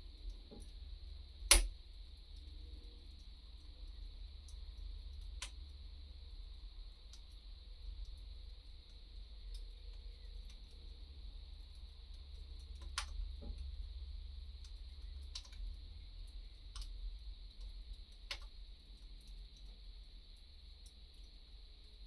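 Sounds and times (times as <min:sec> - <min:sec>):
wood fire crackling: 0:00.2 - 0:01.8, 0:11.7 - 0:19.6
sharp pops of fire: 0:01.5 - 0:01.7.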